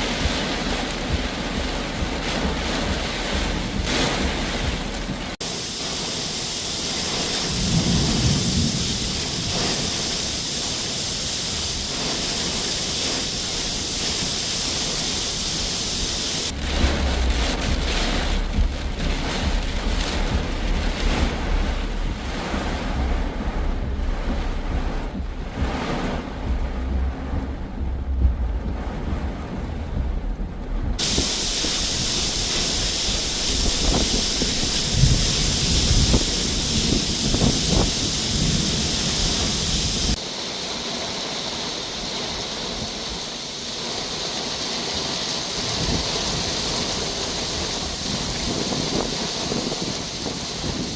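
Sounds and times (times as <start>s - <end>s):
strong wind: 0.0s - 40.3s, 45.0s - 50.9s
heavy rain: 0.0s - 50.9s
wind buffeting microphone: 6.9s - 40.2s, 45.6s - 50.9s.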